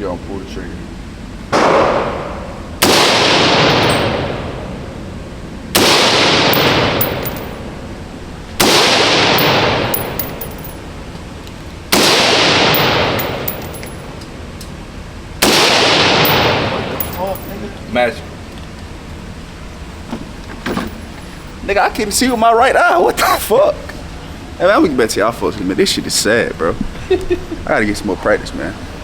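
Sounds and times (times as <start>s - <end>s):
gunshots with echoing decay: 1.6s - 4.6s, 5.8s - 7.8s, 8.6s - 10.9s, 11.9s - 14.2s, 15.4s - 17.5s.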